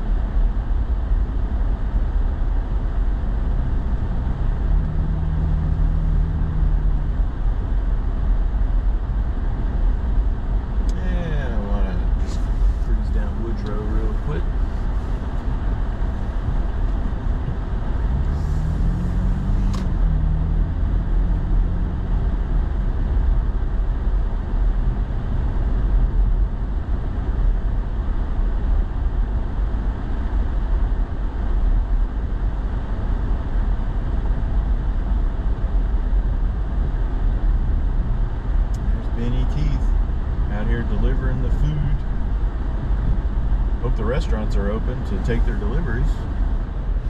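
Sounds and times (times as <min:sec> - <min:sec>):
engine and road noise in cab: 0:00.0 - 0:47.0
engine rising tone: 0:03.5 - 0:07.3, 0:15.7 - 0:22.8
single click: 0:19.6 - 0:19.9.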